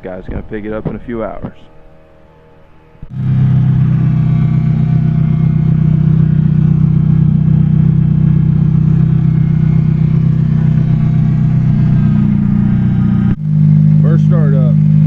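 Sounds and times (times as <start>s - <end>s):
car engine idling: 3.0s - 15.0s.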